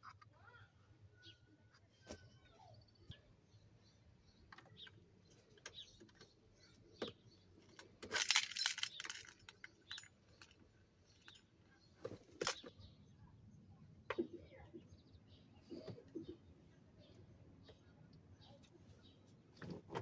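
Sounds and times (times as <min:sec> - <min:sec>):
keys jangling: 0:07.8 - 0:10.6.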